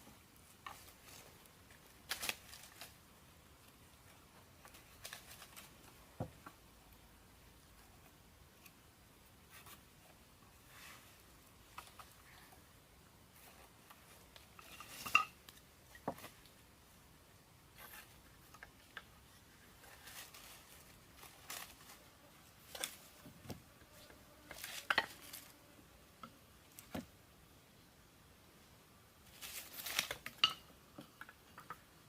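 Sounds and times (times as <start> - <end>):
hard objects clinking and knocking: 30.3 - 31.8.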